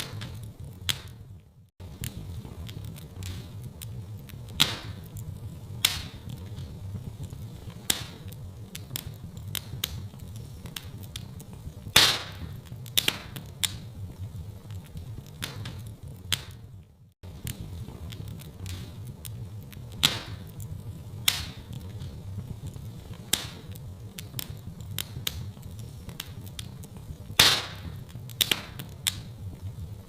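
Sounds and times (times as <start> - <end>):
sharp pops of fire: 0.0 - 30.0
wood fire crackling: 0.0 - 30.0.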